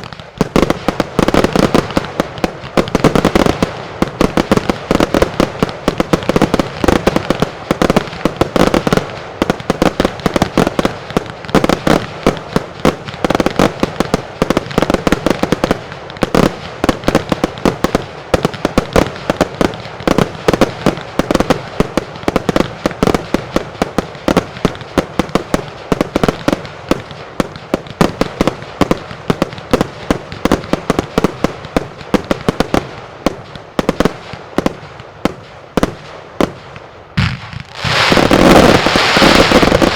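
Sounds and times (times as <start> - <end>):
firework salutes cracking: 37.2 - 39.9.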